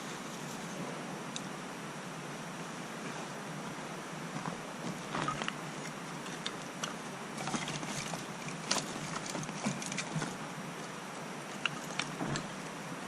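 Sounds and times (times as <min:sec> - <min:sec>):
steady fire hiss: 0:00.0 - 0:13.0
campfire crackling and popping: 0:04.4 - 0:12.7.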